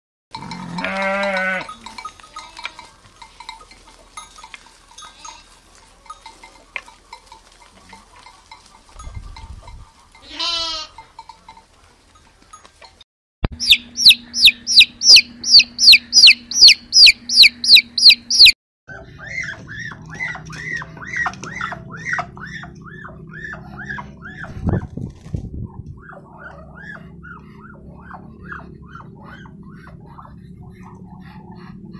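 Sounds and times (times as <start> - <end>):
sheep and lambs bleating: 0.4 - 2.9, 10.2 - 11.0
low hum: 13.5 - 31.9
rapid high-pitched animal calls: 13.6 - 24.8.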